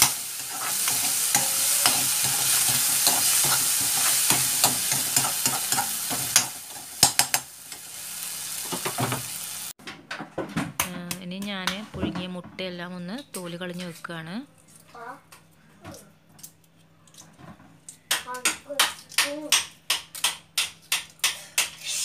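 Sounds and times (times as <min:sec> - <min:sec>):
spatula scraping a metal pan: 0:00.0 - 0:07.3
vegetables sizzling in oil: 0:00.0 - 0:09.8
sharp knocks on a pan: 0:02.7 - 0:07.5, 0:18.1 - 0:21.8.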